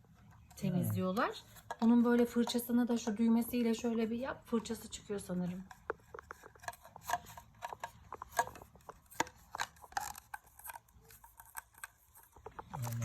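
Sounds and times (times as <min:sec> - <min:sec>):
plastic parts clicking together: 0:05.6 - 0:13.0.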